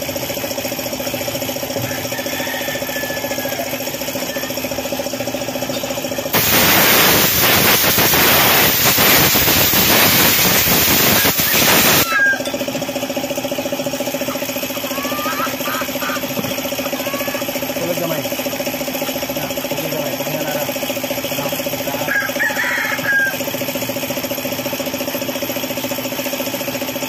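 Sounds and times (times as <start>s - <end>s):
small engine idling: 0.0s - 27.0s
loud hiss: 6.4s - 12.1s.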